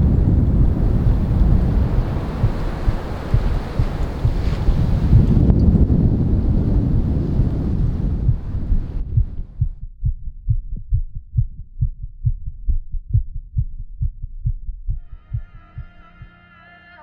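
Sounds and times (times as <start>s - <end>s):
wind noise: 0.0s - 11.6s
fast heartbeat thumps: 0.0s - 16.3s
music: 15.0s - 17.0s.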